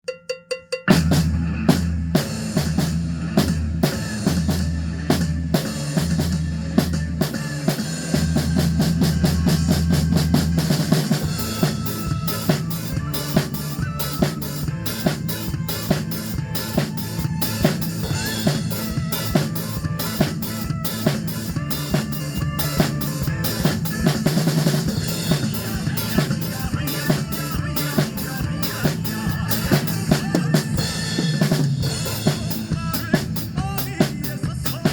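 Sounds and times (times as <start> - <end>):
drum kit playing: 0.0 - 34.9
upbeat backing track: 0.0 - 34.9.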